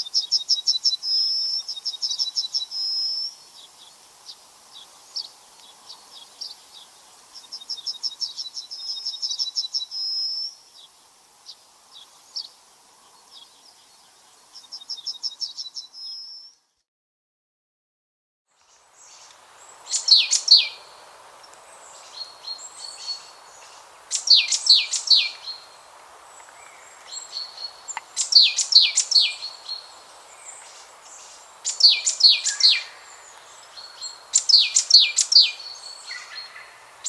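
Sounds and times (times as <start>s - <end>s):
songbird singing: 0.0s - 16.8s, 18.5s - 37.0s.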